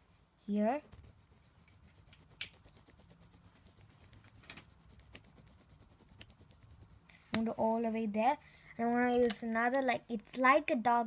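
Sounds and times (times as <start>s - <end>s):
pencil scratching on paper: 0.8s - 7.8s.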